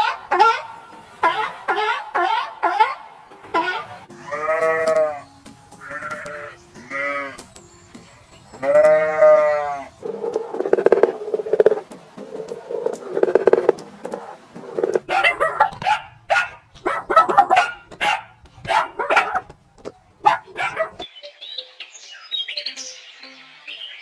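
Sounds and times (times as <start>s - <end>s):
rough pulsing animal calls: 0.0s - 4.0s, 9.2s - 19.5s, 20.2s - 21.0s
farm animal bleating: 3.5s - 7.5s, 8.6s - 9.9s.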